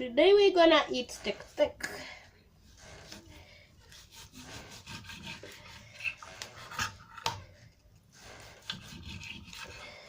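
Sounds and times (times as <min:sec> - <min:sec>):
knife sawing through steak: 0:03.8 - 0:07.0, 0:08.2 - 0:10.0.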